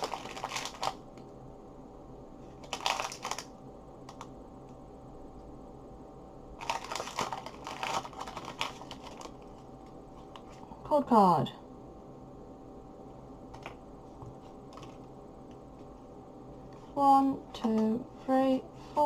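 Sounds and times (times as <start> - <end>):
foil wrapper crinkling: 0.0 - 1.0, 2.6 - 3.5, 6.6 - 9.6.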